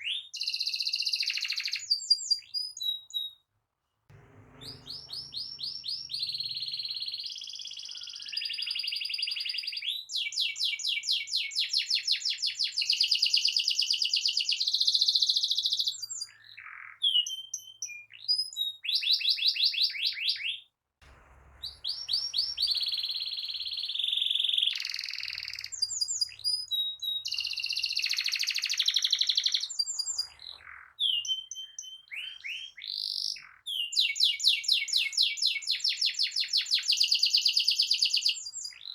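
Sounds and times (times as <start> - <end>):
canary singing trills: 4.1 - 10.0, 21.6 - 38.9.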